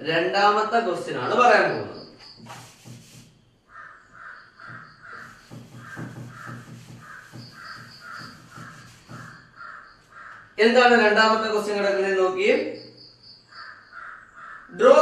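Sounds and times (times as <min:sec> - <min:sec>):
bird calling: 0:01.3 - 0:10.6, 0:12.7 - 0:15.0.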